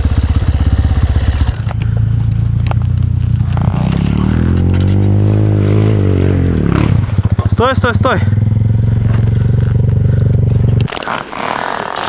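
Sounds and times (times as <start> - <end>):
dirt bike engine revving: 0.0 - 12.0
sharp knocks and scrapes: 1.4 - 7.6.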